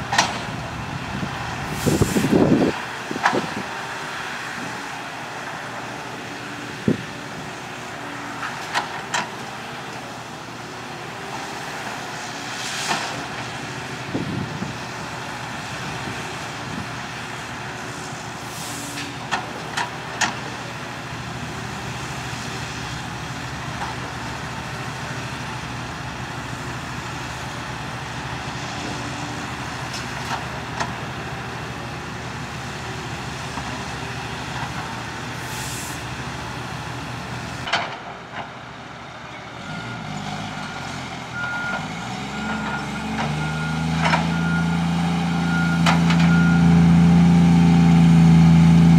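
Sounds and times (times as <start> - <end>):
heavy diesel engines running: 0.0 - 48.9
air hisses: 35.4 - 36.1.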